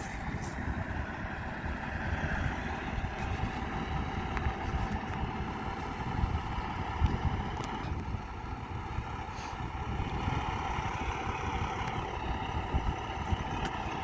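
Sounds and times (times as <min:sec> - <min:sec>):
low vehicle engine rumble: 0:00.0 - 0:14.0
wind buffeting microphone: 0:00.0 - 0:14.0.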